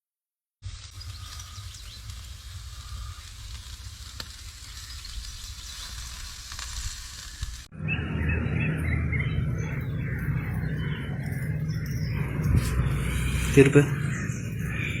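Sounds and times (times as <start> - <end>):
chicken sizzling: 0.6 - 7.7
low rumble: 7.0 - 15.0.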